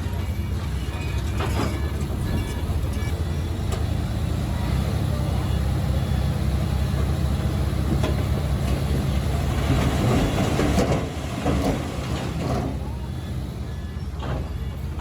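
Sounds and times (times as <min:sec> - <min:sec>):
heavy machinery diesel engine: 0:00.0 - 0:15.0
metallic clanking and scraping: 0:00.9 - 0:03.9, 0:07.8 - 0:15.0.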